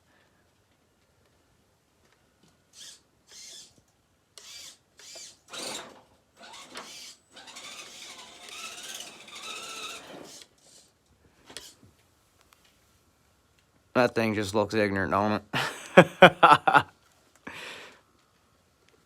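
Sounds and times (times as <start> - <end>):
rc car electric motor whining: 2.7 - 3.8, 4.4 - 10.9.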